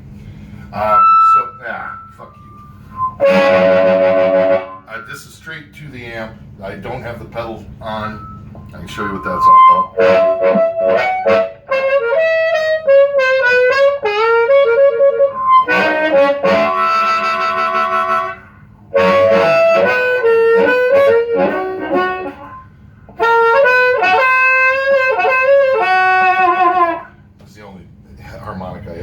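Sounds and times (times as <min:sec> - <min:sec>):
amplified harmonica playing: 0:00.8 - 0:05.1, 0:07.9 - 0:27.2.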